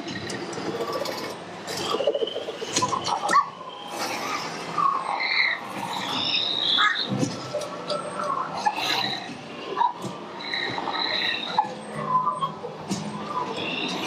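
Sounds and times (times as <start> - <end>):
background hubbub: 0.0 - 14.0
chirping squawking animal calls: 0.7 - 7.2.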